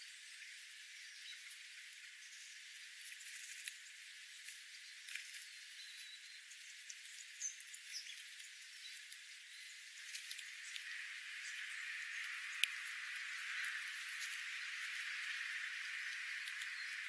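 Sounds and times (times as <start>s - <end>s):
steady hiss: 0.0s - 17.0s
faint bird chirps: 4.3s - 17.0s
small clicks: 10.0s - 10.9s.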